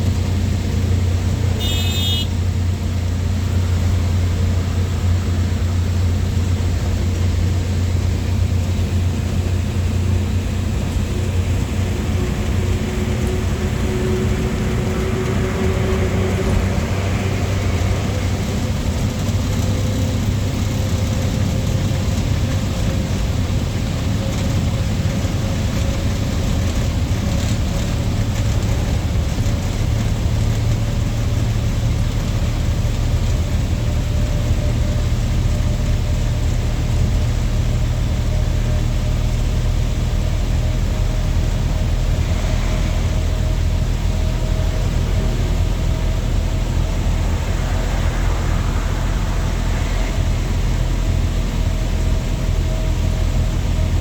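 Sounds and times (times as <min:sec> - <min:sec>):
lorry engine droning: 0:00.0 - 0:54.0
road noise: 0:00.0 - 0:54.0
faint rising whine: 0:41.8 - 0:54.0.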